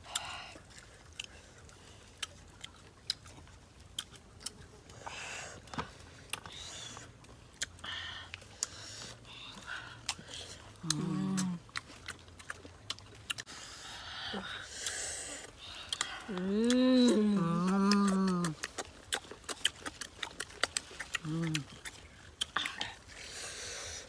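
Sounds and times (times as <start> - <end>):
crisp biting and chewing: 0.0 - 13.8, 14.7 - 24.0
person humming: 10.8 - 11.6, 16.3 - 18.6.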